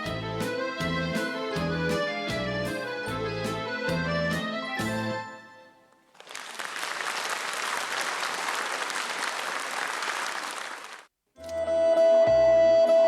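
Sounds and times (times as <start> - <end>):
instrumental song accompaniment: 0.0 - 5.8
audience applause: 6.1 - 11.1.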